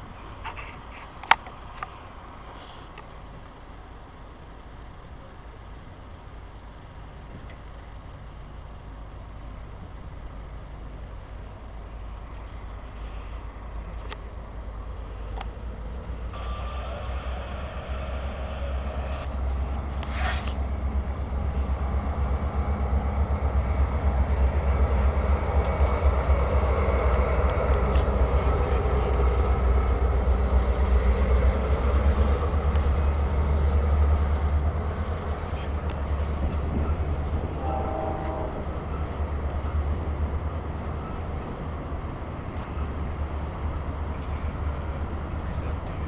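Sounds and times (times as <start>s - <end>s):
diesel locomotive engine rumble: 0.0s - 46.0s
freight cars rolling past: 0.0s - 46.0s
brief hiss: 16.4s - 20.6s.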